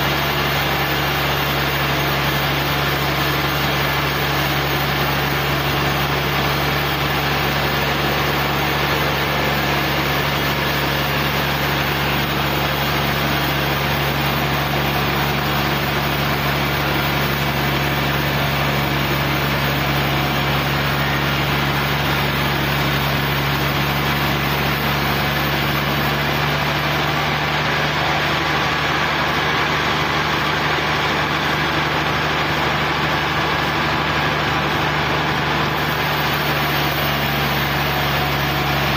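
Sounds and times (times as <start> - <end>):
sawmill machinery humming: 0.0 - 38.9.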